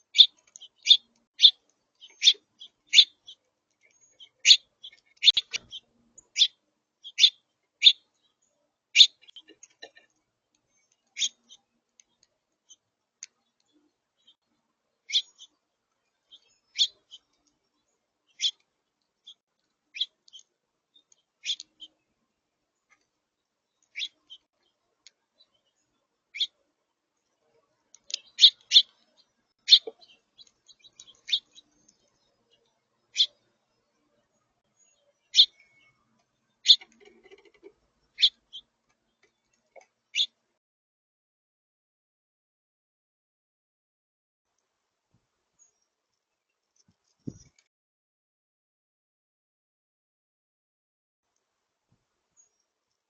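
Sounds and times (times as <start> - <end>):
high-pitched bird chirps: 0.0 - 3.4, 4.0 - 8.0, 9.0 - 9.9, 11.2 - 11.6, 15.1 - 15.5, 16.3 - 17.3, 18.4 - 18.6, 21.4 - 21.9, 26.4 - 26.6, 28.1 - 28.9, 29.6 - 31.6, 33.1 - 33.4, 35.3 - 36.0, 36.6 - 37.6, 38.2 - 38.7.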